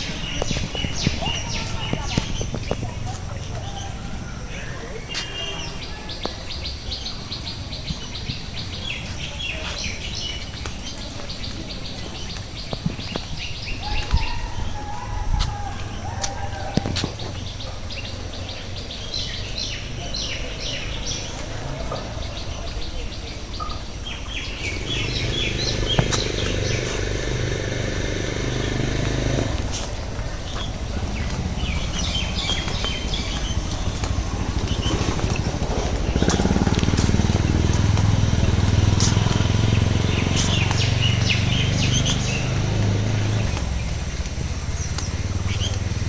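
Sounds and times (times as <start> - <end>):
birds chirping: 0.0 - 46.0
low outdoor background noise: 0.0 - 46.0.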